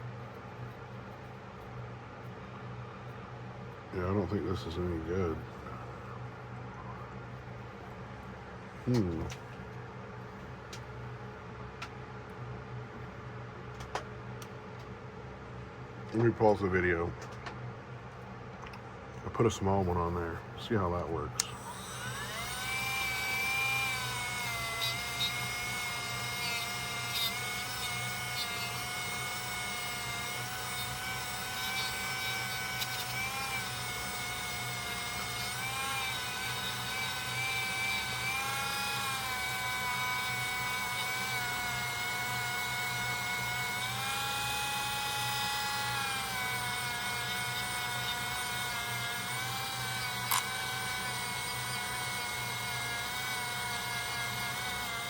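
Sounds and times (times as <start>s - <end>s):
rotary tool whining: 21.4s - 55.0s.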